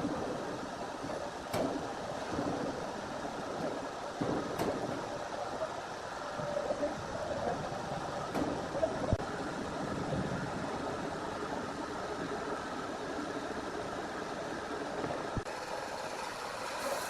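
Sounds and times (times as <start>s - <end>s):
wood-processing machinery humming: 10.6s - 17.0s.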